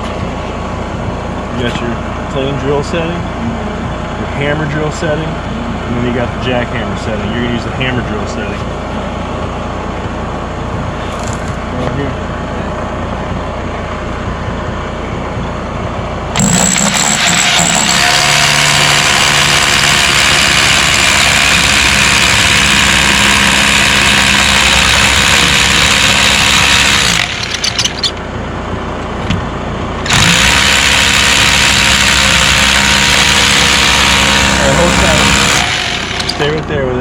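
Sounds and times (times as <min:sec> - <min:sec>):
hammer drill boring into concrete: 0:16.4 - 0:28.2, 0:30.1 - 0:36.6.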